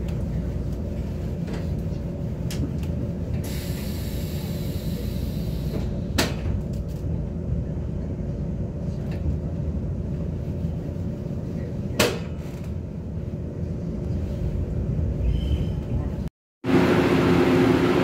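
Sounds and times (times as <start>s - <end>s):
train rumble with hum: 0.0s - 18.0s
air hiss: 3.4s - 5.8s.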